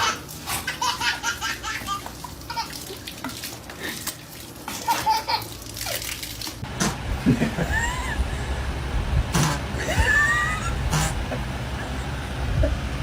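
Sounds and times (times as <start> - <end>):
water splashing and sloshing: 0.0 - 7.0
people laughing: 7.2 - 8.3, 9.8 - 12.8.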